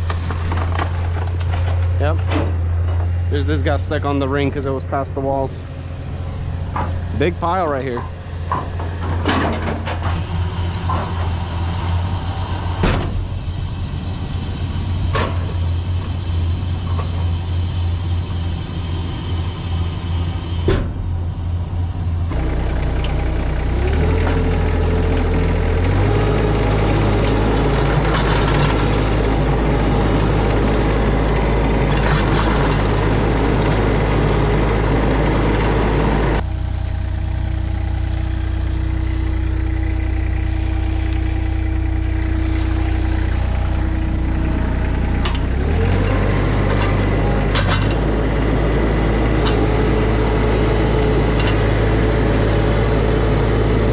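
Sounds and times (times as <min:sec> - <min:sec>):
vehicle engine running: 0:00.0 - 0:53.9.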